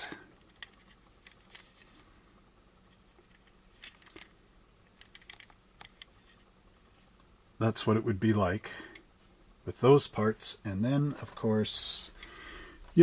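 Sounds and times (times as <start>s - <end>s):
plastic model parts clicking: 3.3s - 4.3s, 4.9s - 6.2s.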